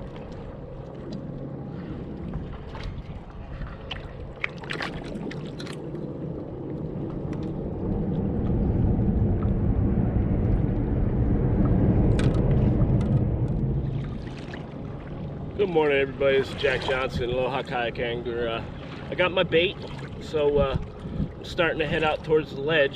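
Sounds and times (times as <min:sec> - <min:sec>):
water splashes: 0:00.0 - 0:22.9
water washing against kayak: 0:00.0 - 0:22.9
wind buffeting microphone: 0:00.0 - 0:22.9.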